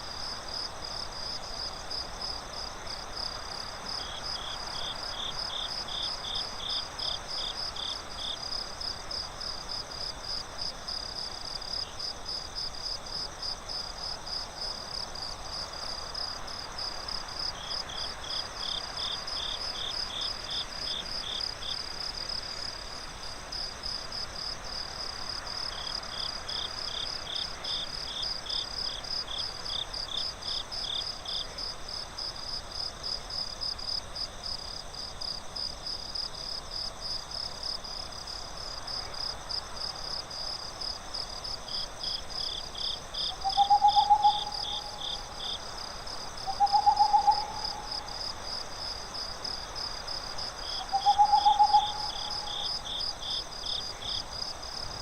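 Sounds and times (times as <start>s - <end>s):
crickets chirping: 0.0s - 55.0s
lower-pitched cricket chirping: 0.0s - 55.0s
owl hooting: 43.3s - 45.0s, 46.4s - 48.1s, 50.8s - 52.5s.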